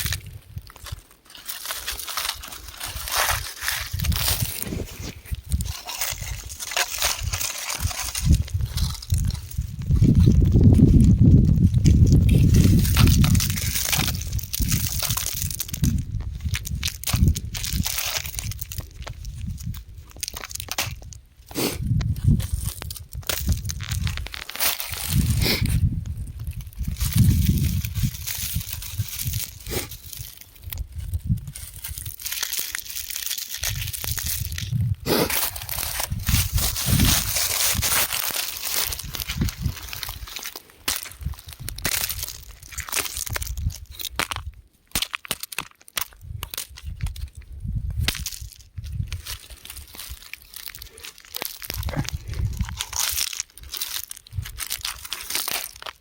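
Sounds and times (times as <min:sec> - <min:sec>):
rock crumbling and crunching: 0:00.0 - 0:56.0
dull low rumbles: 0:51.5 - 0:53.0.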